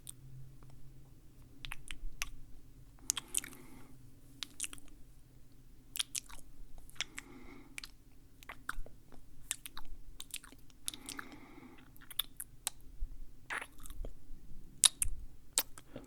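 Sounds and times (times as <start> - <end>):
wet mouth clicks and smacks: 1.6 - 2.4, 3.0 - 3.8, 4.4 - 5.0, 5.9 - 12.8, 13.5 - 14.2, 14.8 - 16.0.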